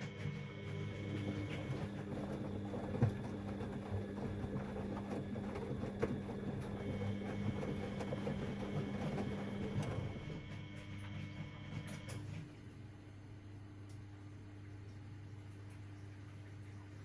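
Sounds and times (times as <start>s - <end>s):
washing machine running: 0.0s - 17.0s.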